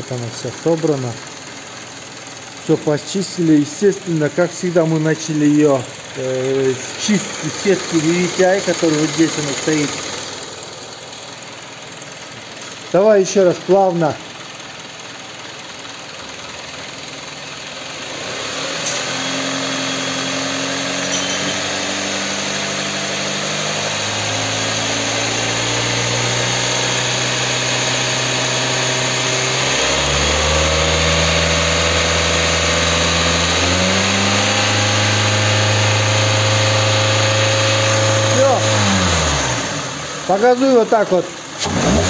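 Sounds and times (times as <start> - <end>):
car engine revving: 2.6 - 11.4, 17.9 - 42.0.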